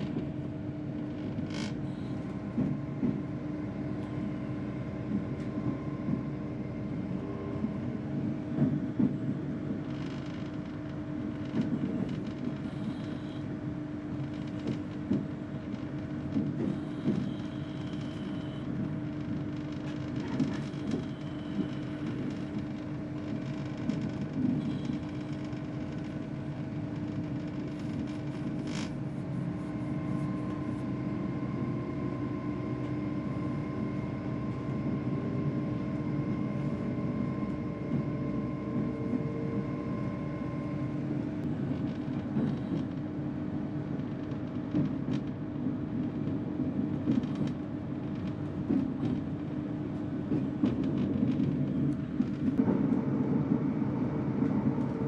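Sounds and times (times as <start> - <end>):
train rumbling at speed: 0.0 - 55.0
faint steady whine: 50.3 - 55.0.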